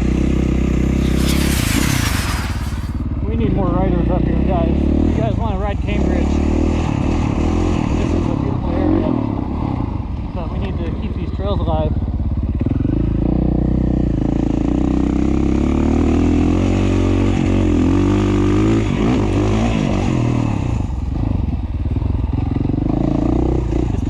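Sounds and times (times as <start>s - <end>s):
dirt bike engine revving: 0.0s - 3.0s.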